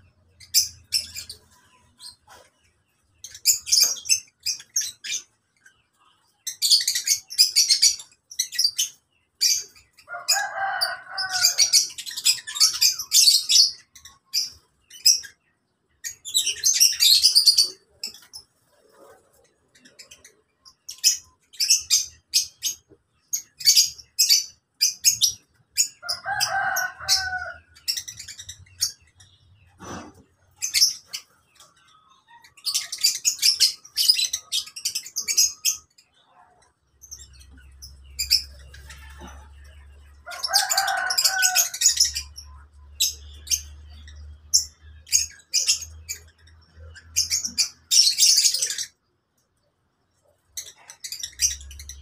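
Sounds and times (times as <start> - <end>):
lovebirds chirping: 0.0 - 52.0.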